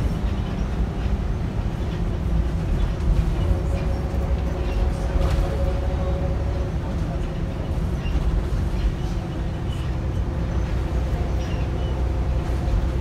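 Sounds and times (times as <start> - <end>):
bus diesel engine rumble: 0.0 - 13.0.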